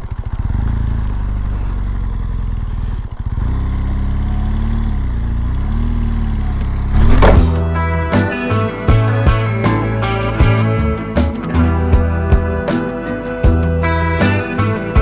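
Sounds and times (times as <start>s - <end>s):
motorcycle engine running: 0.0s - 15.0s
rising swoosh: 6.8s - 7.6s
music: 7.2s - 15.0s.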